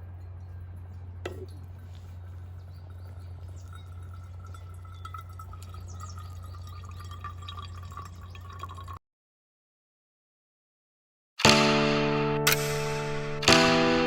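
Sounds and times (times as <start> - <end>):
faint wavering tone: 0.0 - 7.0
steady low hum: 0.0 - 7.4
liquid trickling: 0.2 - 9.0.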